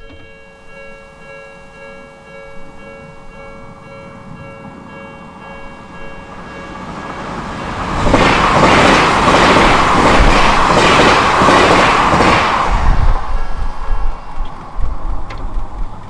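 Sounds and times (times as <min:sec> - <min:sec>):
level crossing warning bell: 0:00.0 - 0:08.0
train wheels clattering: 0:02.7 - 0:16.0.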